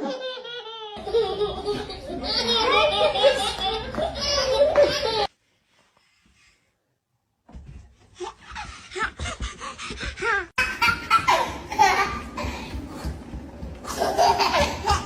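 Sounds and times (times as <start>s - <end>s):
people laughing: 0.0s - 5.3s.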